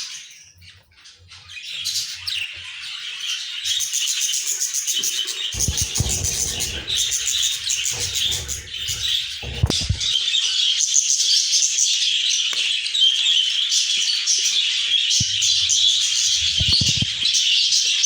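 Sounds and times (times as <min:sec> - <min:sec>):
budgerigars chirping and chattering: 0:05.3 - 0:10.3, 0:15.2 - 0:17.6
low rustling rumble: 0:05.6 - 0:10.2, 0:15.2 - 0:17.2
sharp knock: 0:05.6 - 0:10.2, 0:15.2 - 0:17.2.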